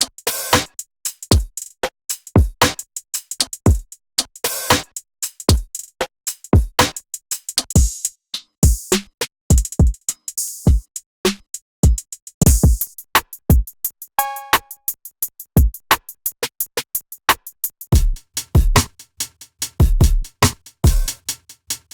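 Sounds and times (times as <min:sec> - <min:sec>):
hi-hats: 0:00.0 - 0:21.9
electronic kick drums: 0:09.5 - 0:10.0, 0:11.8 - 0:12.9, 0:13.5 - 0:14.8, 0:15.6 - 0:15.8, 0:17.9 - 0:18.9, 0:19.8 - 0:21.2.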